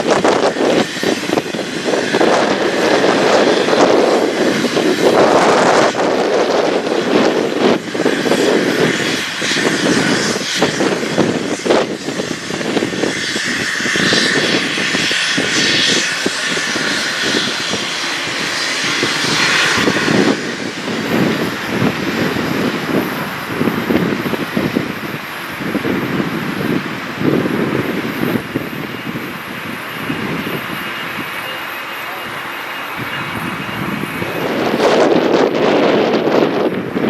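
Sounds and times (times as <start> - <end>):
jet engines running: 0.0 - 37.0
wind gusting on microphone: 0.0 - 37.0.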